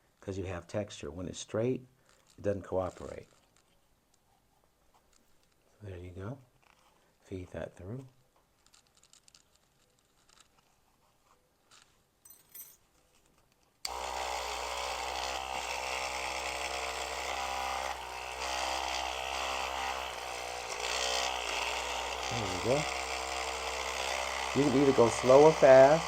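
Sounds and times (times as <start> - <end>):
small electric motor running: 13.9 - 26.0.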